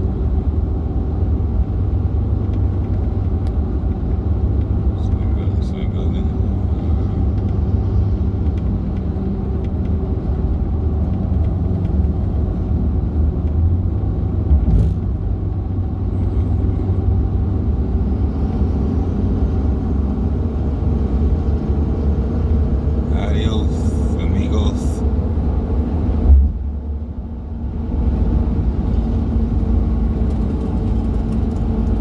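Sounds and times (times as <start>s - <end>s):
truck engine and road rumble: 0.0s - 32.0s.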